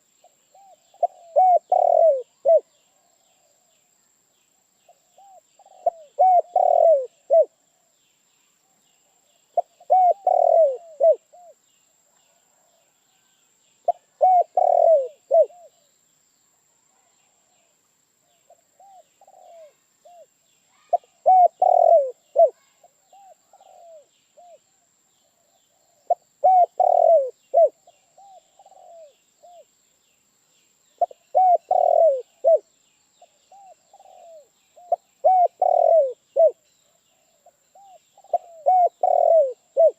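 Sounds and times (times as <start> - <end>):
dove cooing: 0.5 - 2.7, 5.1 - 7.6, 9.6 - 11.6, 13.9 - 15.8, 18.5 - 20.3, 20.9 - 24.6, 25.4 - 29.6, 31.0 - 32.7, 33.5 - 39.9.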